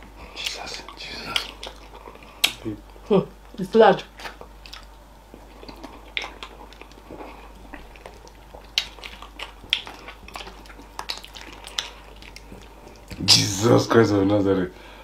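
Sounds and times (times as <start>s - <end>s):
wet chewing: 0.0s - 13.3s
mouth smacks and clicks: 0.4s - 2.7s, 4.0s - 13.2s.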